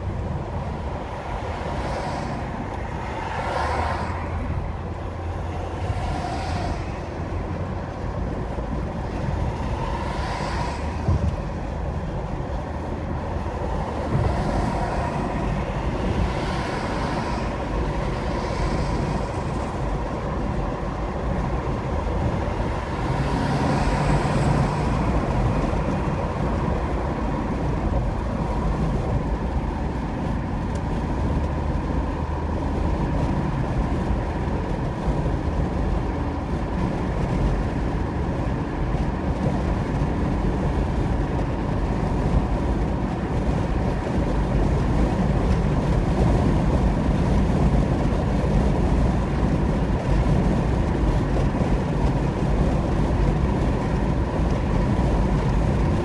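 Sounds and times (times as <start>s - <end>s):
car driving at highway speed: 0.0s - 56.0s.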